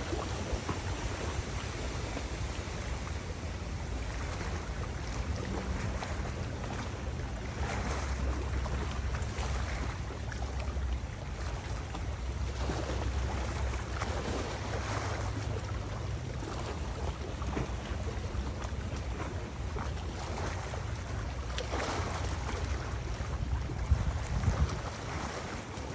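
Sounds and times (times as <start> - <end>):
river water rushing: 0.0 - 25.9
wind buffeting microphone: 0.0 - 25.9.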